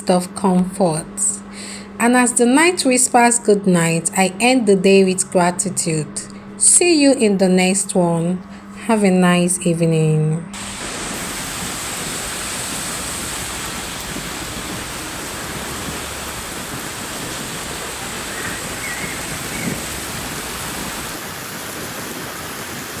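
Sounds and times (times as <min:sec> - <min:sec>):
steady rain: 0:10.6 - 0:23.0.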